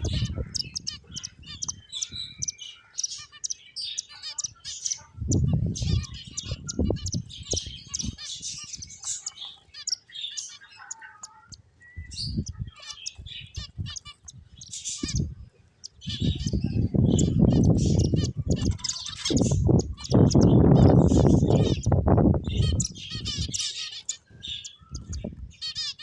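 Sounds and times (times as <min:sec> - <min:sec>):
finches chirping: 0:00.0 - 0:26.0.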